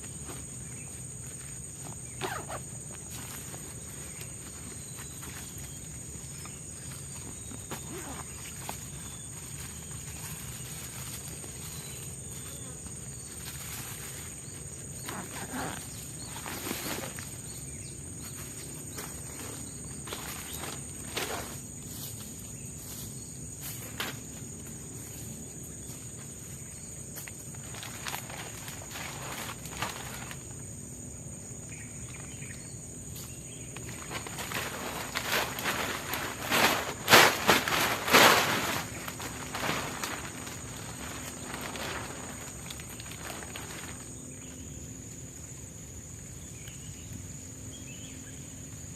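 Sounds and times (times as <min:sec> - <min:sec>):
footsteps crunching on forest floor: 0:00.0 - 0:30.7, 0:31.7 - 0:44.5
background hiss: 0:00.0 - 0:48.9
insects droning: 0:00.0 - 0:48.9
short rustles or knocks: 0:33.8 - 0:44.0.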